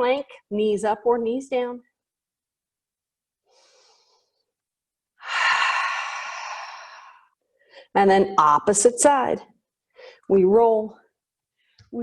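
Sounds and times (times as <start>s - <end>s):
woman breathing: 3.4s - 4.6s, 5.2s - 8.0s, 9.9s - 10.3s.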